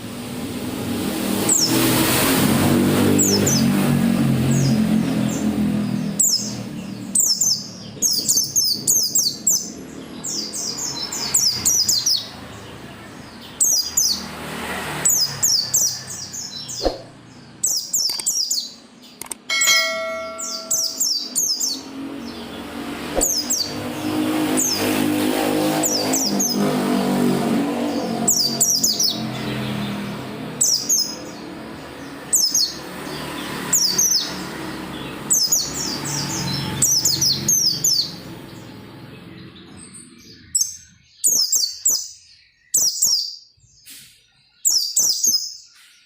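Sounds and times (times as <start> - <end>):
bird twittering: 15.6 - 21.9
steady tone: 19.5 - 21.4.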